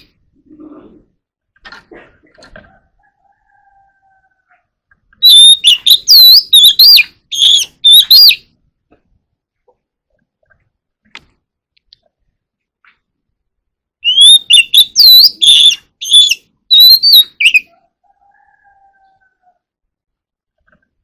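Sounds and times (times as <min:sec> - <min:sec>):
bird whistling song: 0:05.2 - 0:08.5, 0:14.0 - 0:17.7.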